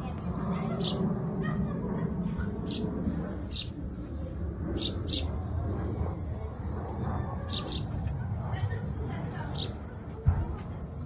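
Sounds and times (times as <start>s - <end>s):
steady low rumble: 0.0s - 11.0s
bird chirping: 3.5s - 5.3s.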